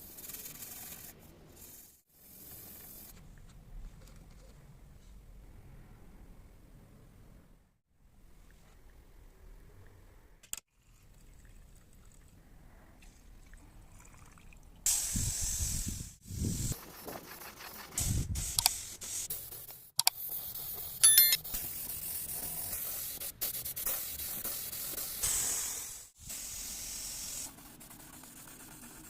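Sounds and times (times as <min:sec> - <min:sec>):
pressurised spray hissing: 0:24.0 - 0:27.5.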